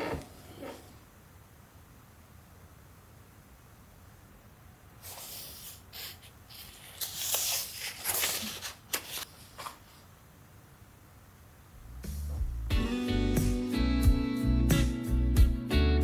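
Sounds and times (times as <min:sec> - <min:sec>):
rustling and scraping: 0:00.0 - 0:01.0.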